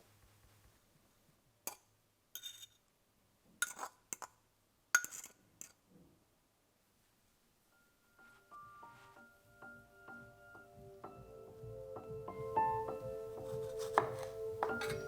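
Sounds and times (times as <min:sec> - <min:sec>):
glassware clinking: 0:02.4 - 0:02.8, 0:03.6 - 0:04.4, 0:05.0 - 0:05.8, 0:13.9 - 0:15.0.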